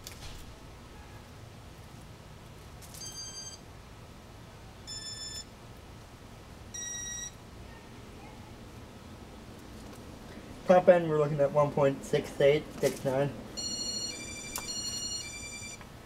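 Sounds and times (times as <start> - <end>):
short electronic beeps: 3.0 - 3.6, 4.9 - 5.5, 6.8 - 7.4, 13.6 - 15.8.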